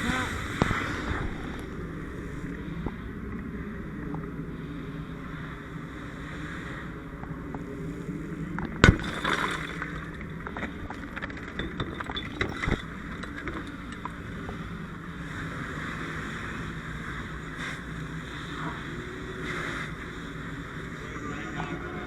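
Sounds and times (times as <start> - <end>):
low mechanical rumble: 0.0 - 22.0
scattered clinks and crackles: 9.8 - 14.3.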